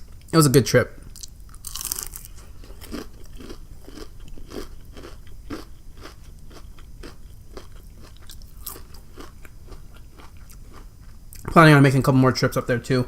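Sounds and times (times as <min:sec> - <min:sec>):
chewing crunchy food: 0:01.1 - 0:11.5.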